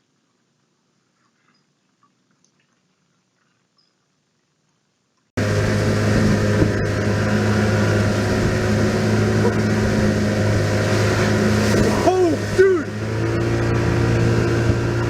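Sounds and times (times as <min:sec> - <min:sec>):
engine starting and running: 0:05.4 - 0:15.0
rushing noise: 0:05.4 - 0:15.0.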